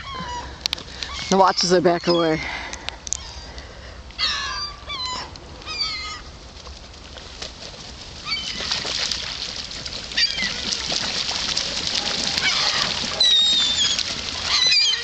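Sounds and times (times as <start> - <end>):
gulls calling: 0.0 - 2.6, 10.1 - 15.0
wings flapping and scuffling: 6.5 - 15.0.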